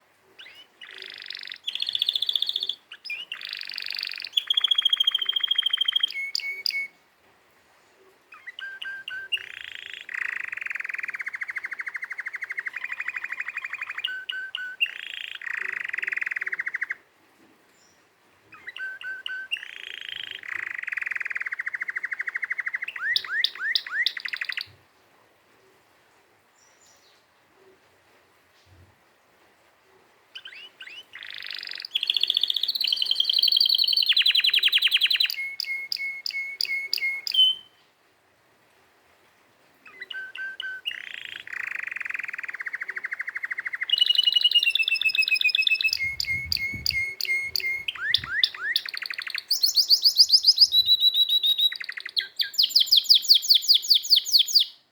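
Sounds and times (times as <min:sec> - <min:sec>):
canary singing trills: 0:00.4 - 0:07.0, 0:08.3 - 0:17.0, 0:18.5 - 0:24.7, 0:30.4 - 0:37.8, 0:39.9 - 0:54.8.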